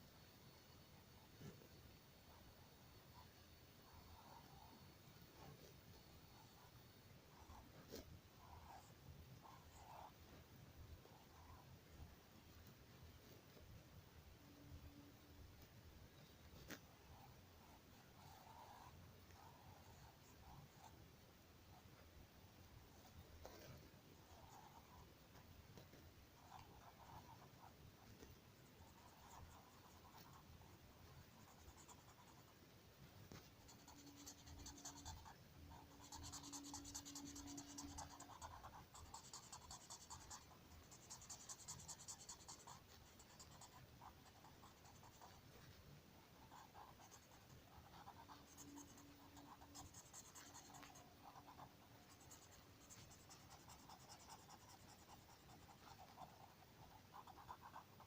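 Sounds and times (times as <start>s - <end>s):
drawing tool scratching paper: 33.4s - 45.7s, 46.4s - 58.0s.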